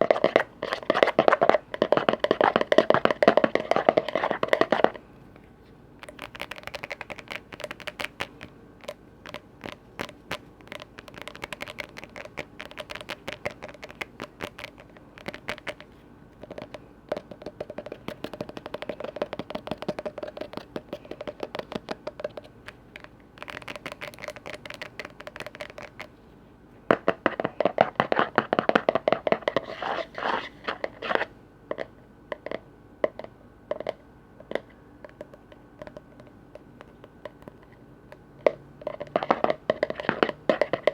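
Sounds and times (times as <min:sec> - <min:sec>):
tapping and scratching on lids: 0:00.0 - 0:05.0, 0:06.0 - 0:26.1, 0:26.9 - 0:31.3, 0:38.5 - 0:40.9.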